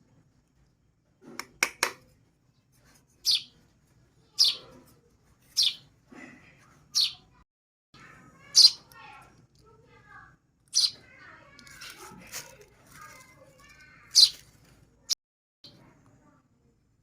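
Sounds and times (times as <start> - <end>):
baby birds chirping: 3.2 - 3.6, 4.3 - 4.8, 5.4 - 5.9, 6.9 - 7.4, 8.4 - 9.1, 10.7 - 12.6, 14.0 - 14.5.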